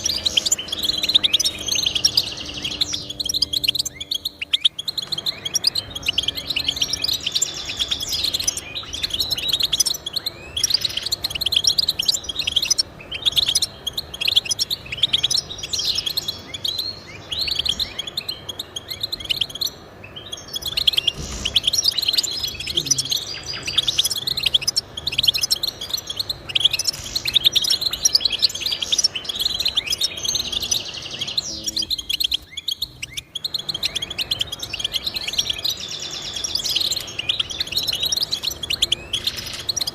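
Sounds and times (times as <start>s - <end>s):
finch twittering: 0.0s - 39.9s.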